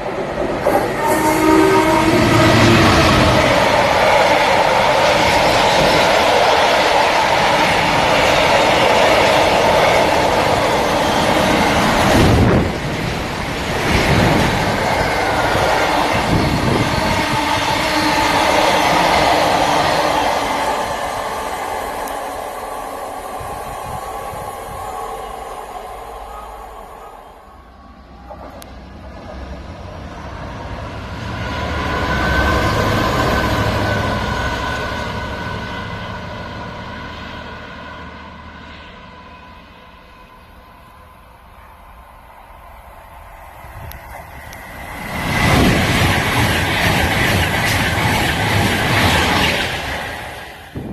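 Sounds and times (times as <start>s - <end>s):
train wheels rushing over rails: 0.0s - 27.3s, 43.2s - 50.9s.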